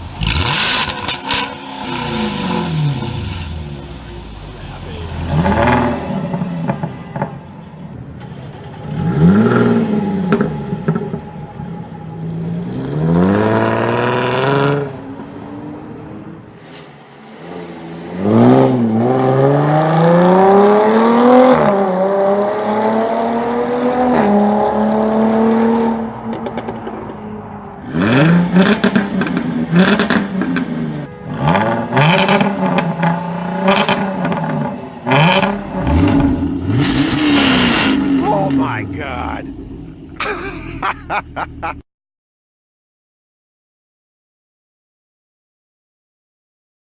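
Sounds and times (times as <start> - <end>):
car engine revving: 0.0 - 15.0, 17.3 - 41.8
exhaust crackles: 34.3 - 41.8.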